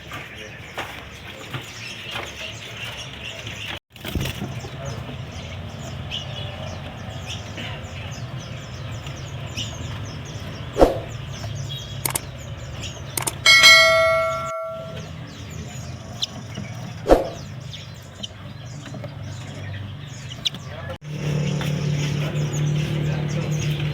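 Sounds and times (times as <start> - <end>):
songbirds chirping: 0.0 - 23.9
clicks: 12.0 - 12.3, 13.2 - 15.0
metallic ring: 13.2 - 15.0
sharp knocks: 13.2 - 15.0.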